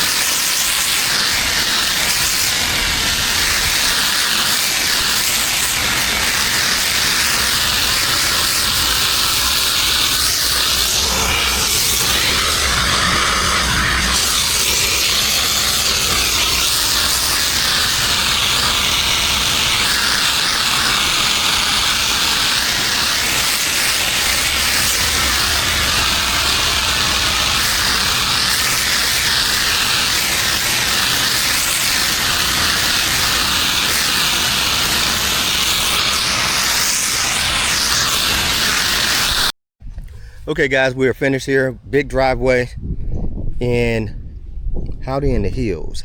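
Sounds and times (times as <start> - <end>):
pressure washer spraying concrete: 0.0 - 39.5
engine humming: 5.7 - 35.4.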